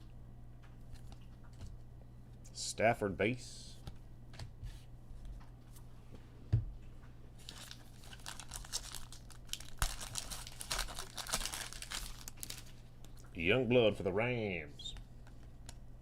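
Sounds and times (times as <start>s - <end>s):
foil wrapper crinkling and tearing: 7.4s - 13.3s.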